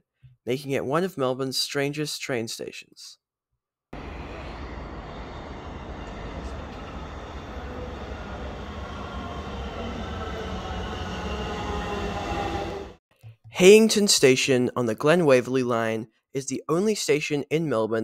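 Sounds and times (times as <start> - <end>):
electric train rumble: 4.0 - 13.0
faint train whine: 4.0 - 13.0.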